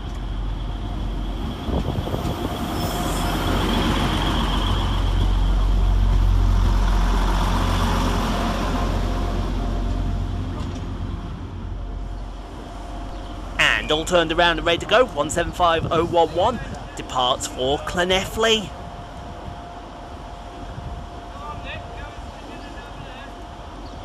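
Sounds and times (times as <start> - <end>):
diesel train rumbling: 0.0 - 24.0
high-pitched squeal: 1.4 - 5.4.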